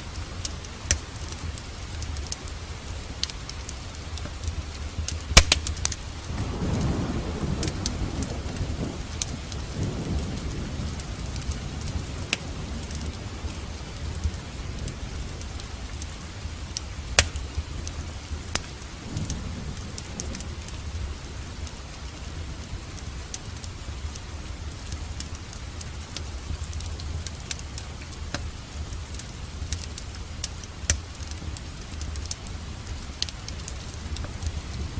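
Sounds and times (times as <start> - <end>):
fireplace crackling: 0.0 - 19.0, 19.7 - 34.9
steady rain: 0.0 - 34.9
rolling thunder: 5.4 - 15.6.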